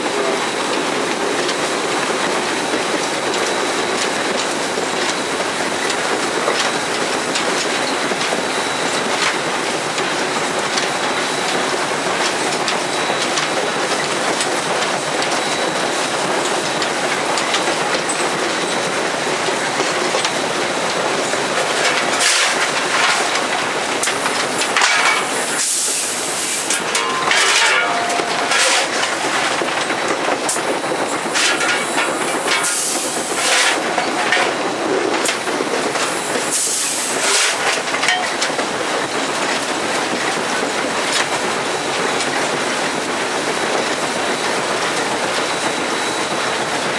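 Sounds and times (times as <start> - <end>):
steam locomotive running: 0.0 - 46.9
wheels on rails: 0.0 - 46.9
steam hissing: 10.4 - 38.0.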